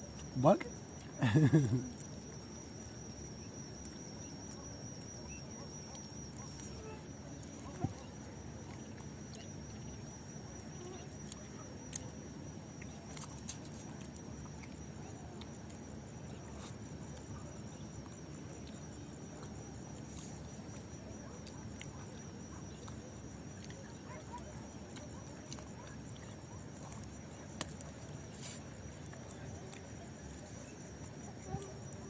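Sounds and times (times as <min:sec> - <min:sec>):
faint wavering high tone: 0:01.9 - 0:23.3.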